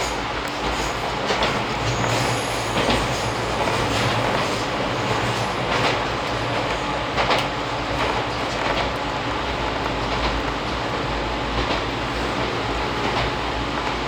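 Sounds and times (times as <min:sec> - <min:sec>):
train wheels rumbling on rails: 0:00.0 - 0:14.0
wheels clacking over rail joints: 0:00.0 - 0:14.0.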